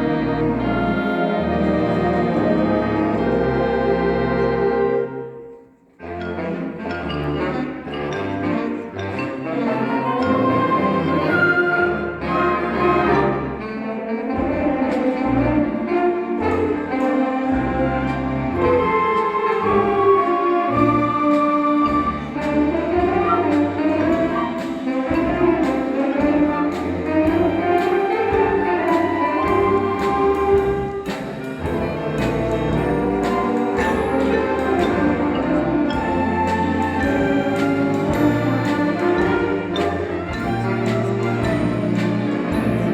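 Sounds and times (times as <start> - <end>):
symphonic band playing: 0.0 - 42.9.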